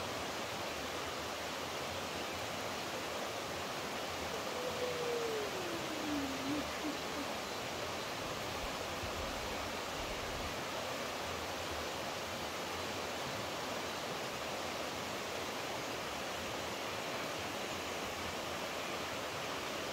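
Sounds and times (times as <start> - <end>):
flowing water rushing: 0.0 - 19.9.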